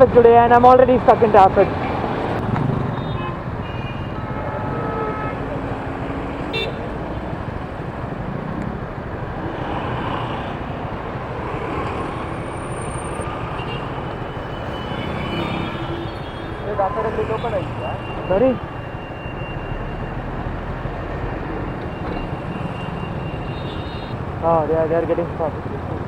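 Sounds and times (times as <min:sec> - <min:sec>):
car engines running: 0:00.0 - 0:26.0
vehicle horns honking: 0:02.8 - 0:07.4, 0:12.4 - 0:20.5, 0:21.5 - 0:24.4.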